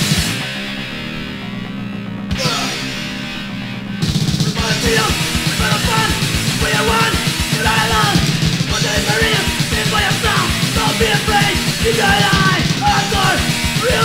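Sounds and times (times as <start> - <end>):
hardcore punk band playing: 0.0 - 14.0.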